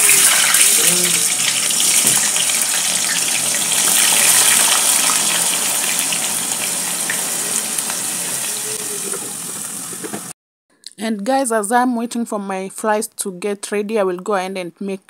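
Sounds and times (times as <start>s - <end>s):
chips sizzling in hot oil: 0.0s - 10.3s.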